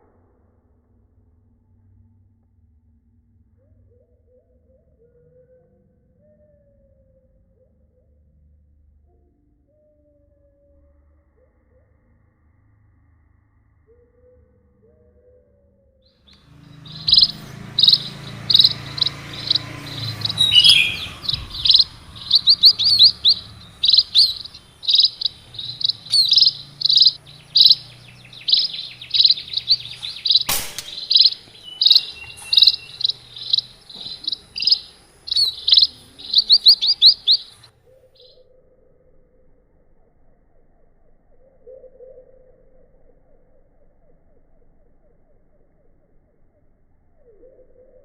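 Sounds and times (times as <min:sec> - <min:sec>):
small birds chirping: 0:16.3 - 0:38.4
sharp click: 0:29.6 - 0:32.6.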